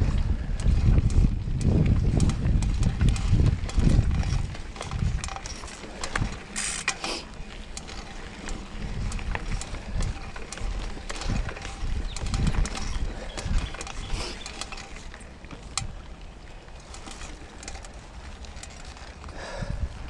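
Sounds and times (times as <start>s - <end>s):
wind buffeting microphone: 0.0s - 15.1s, 19.2s - 20.0s
mountain bike rattling over trail: 0.0s - 20.0s.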